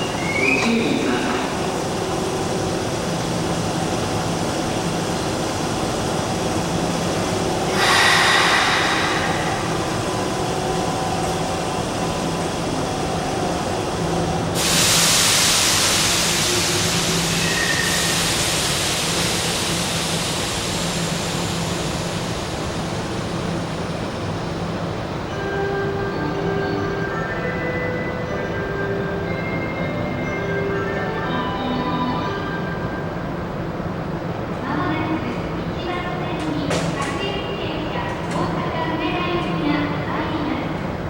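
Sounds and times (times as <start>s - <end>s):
electric train rumbling: 0.0s - 41.0s
air hiss: 7.7s - 10.5s, 14.6s - 22.4s.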